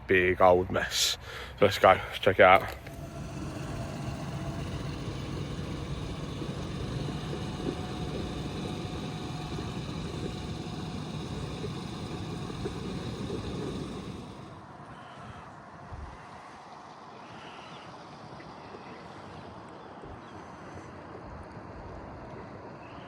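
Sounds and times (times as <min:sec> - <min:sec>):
digger engine running: 0:02.3 - 0:14.8.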